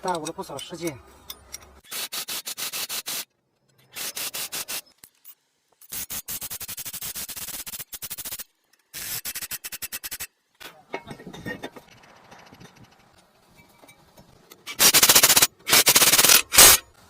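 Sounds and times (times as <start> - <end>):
ratchet wrench clicking: 14.6 - 16.8.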